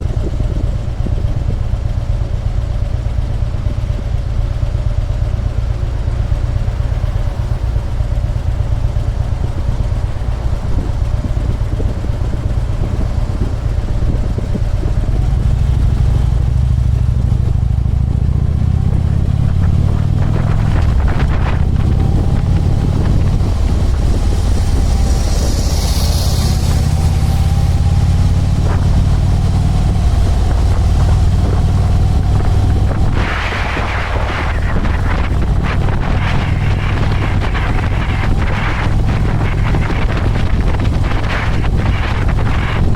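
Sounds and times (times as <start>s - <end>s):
motorcycle engine running: 0.0s - 42.9s
brief hiss: 24.8s - 27.4s.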